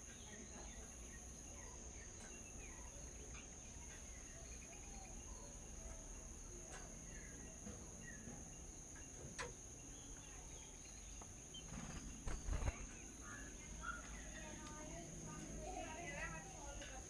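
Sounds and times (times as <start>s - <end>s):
bird chirps: 0.0s - 17.0s
crickets chirping: 0.0s - 17.0s.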